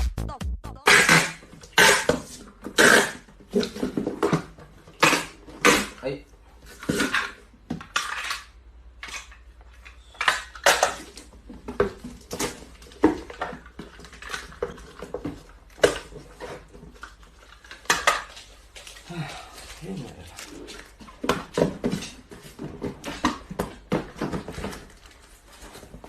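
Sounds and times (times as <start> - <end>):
hard objects clattering and clinking: 6.6 - 26.0.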